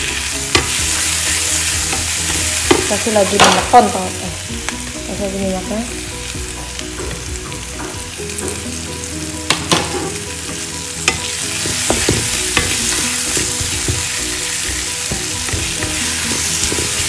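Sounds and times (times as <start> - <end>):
paste sizzling in oil: 0.0 - 17.0
spatula knocking pan: 0.5 - 4.0, 9.5 - 10.2, 11.0 - 17.0.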